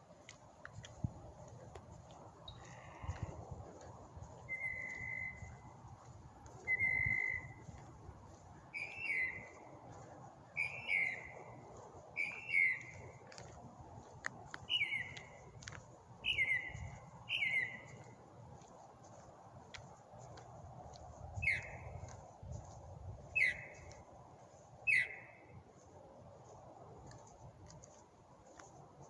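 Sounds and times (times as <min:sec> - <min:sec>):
mockingbird singing: 0:08.8 - 0:09.5, 0:16.2 - 0:17.8.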